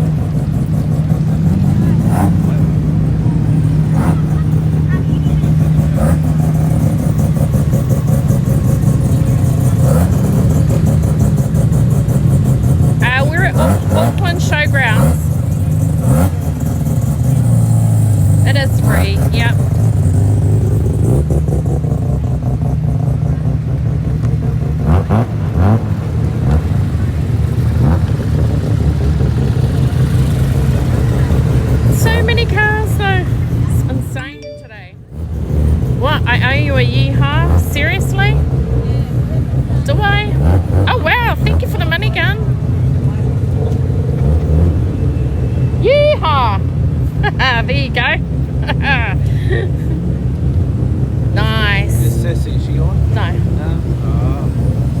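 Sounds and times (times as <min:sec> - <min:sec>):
car engine running: 0:00.0 - 0:55.0
voices: 0:01.4 - 0:17.7, 0:18.4 - 0:20.1, 0:29.4 - 0:35.1, 0:36.0 - 0:44.1, 0:45.0 - 0:50.1, 0:51.1 - 0:55.0.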